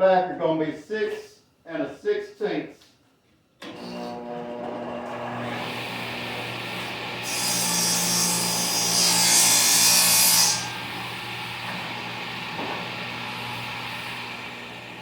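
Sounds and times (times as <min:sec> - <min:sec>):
table saw cutting wood: 0:03.6 - 0:15.0.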